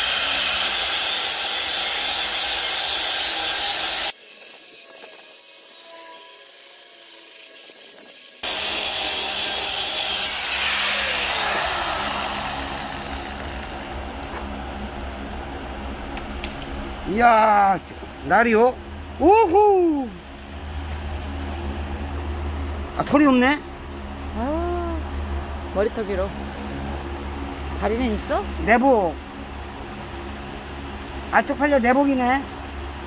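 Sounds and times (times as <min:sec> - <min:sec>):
grinder grinding steel: 0:00.0 - 0:14.1.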